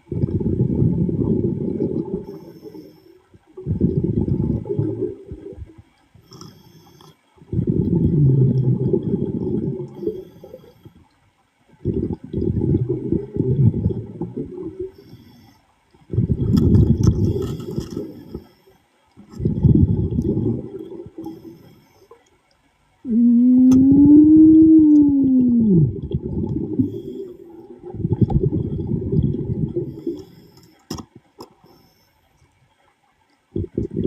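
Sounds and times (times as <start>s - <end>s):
diver exhaling air bubbles underwater: 0.0s - 2.4s, 3.6s - 5.8s, 7.5s - 10.6s, 11.8s - 14.9s, 19.2s - 21.4s, 23.0s - 30.3s, 33.5s - 34.0s.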